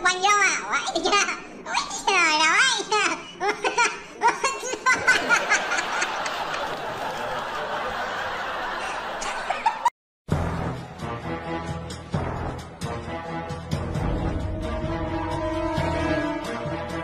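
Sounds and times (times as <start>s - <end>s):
people laughing: 4.5s - 9.9s.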